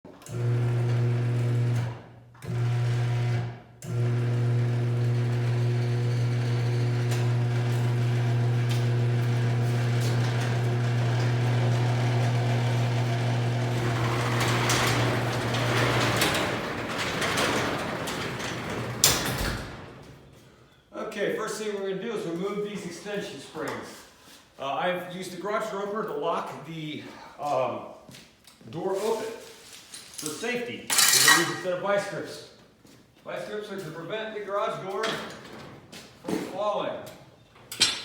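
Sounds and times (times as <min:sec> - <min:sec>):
steady mechanical hum: 0:02.5 - 0:20.2
rattling sound: 0:10.1 - 0:20.2.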